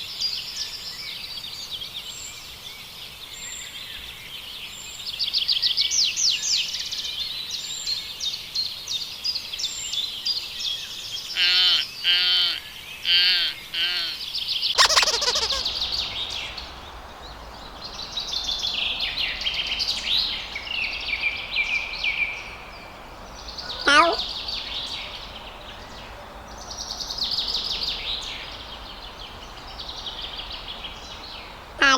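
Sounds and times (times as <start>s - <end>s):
short wavering lower bird calls: 14.8s - 31.9s
small birds chirping: 14.8s - 31.9s.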